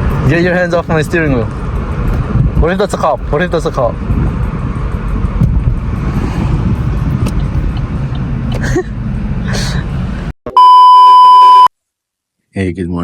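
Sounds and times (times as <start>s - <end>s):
car cabin road rumble: 0.0s - 10.4s.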